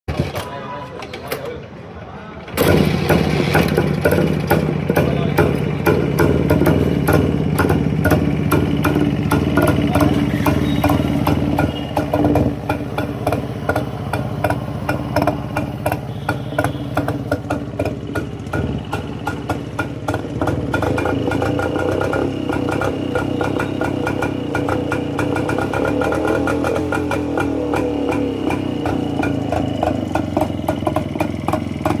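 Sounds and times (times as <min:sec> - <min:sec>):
motorcycle engine idling: 0:02.5 - 0:32.0.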